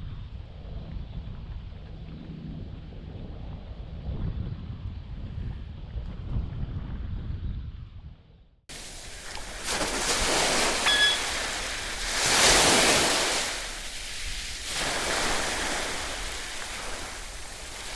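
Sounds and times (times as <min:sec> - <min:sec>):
sea waves washing: 0:08.7 - 0:17.9
short high squeak: 0:10.5 - 0:11.7.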